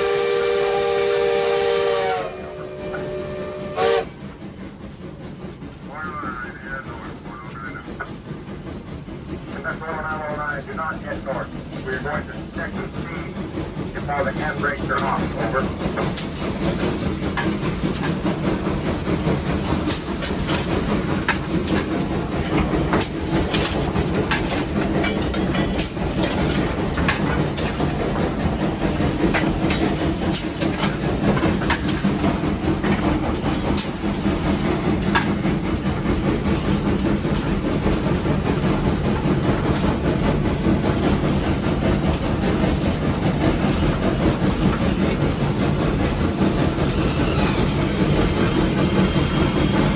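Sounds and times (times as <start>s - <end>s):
steam locomotive rumble and hiss: 0.0s - 49.9s
wheels clicking and clanking: 14.9s - 49.9s.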